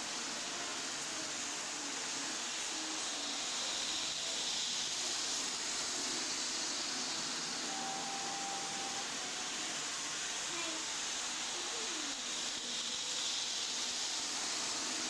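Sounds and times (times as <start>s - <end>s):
model train motor whirring: 0.0s - 15.0s
faint tone: 7.7s - 9.3s.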